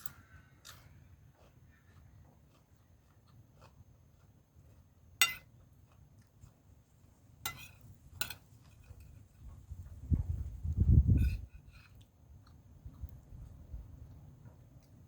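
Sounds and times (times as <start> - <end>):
spoon clinking against a plate: 5.2 - 5.5, 7.5 - 8.5.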